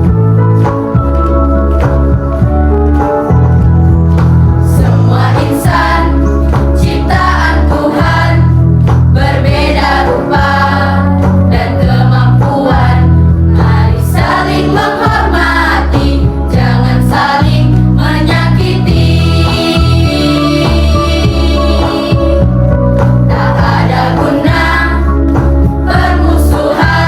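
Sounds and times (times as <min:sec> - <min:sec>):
instrumental accompaniment with bass: 0:00.0 - 0:27.0
choir singing: 0:04.8 - 0:08.6, 0:09.2 - 0:22.4, 0:23.3 - 0:25.1, 0:25.9 - 0:27.0.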